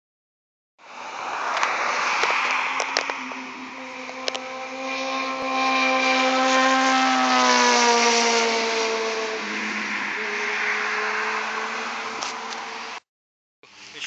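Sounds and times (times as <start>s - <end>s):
motorcycle engine running: 3.6s - 10.4s.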